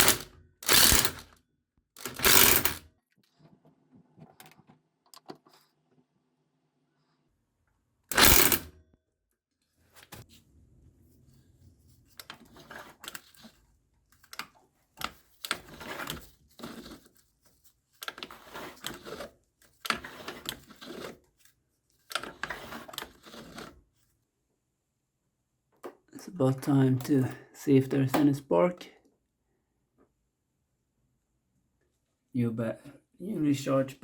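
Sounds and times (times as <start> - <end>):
socket ratchet clicking: 0.0 - 1.3, 2.0 - 2.8, 8.1 - 8.7.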